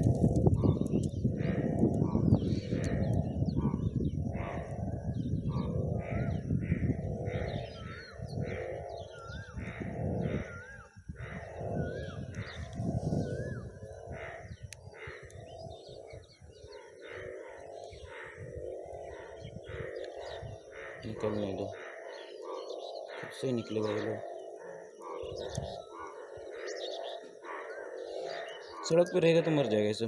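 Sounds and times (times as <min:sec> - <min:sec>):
low microphone rumble: 0:00.0 - 0:16.7
harsh bird calls: 0:00.0 - 0:30.0
whistled bird notes: 0:11.6 - 0:18.4.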